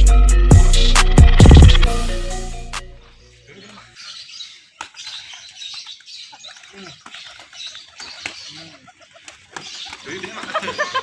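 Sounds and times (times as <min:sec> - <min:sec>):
small birds chirping: 0:03.1 - 0:11.0.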